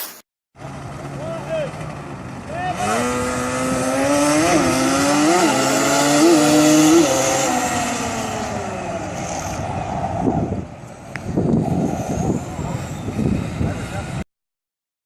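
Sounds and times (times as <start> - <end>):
model car engine revving: 2.8 - 9.6.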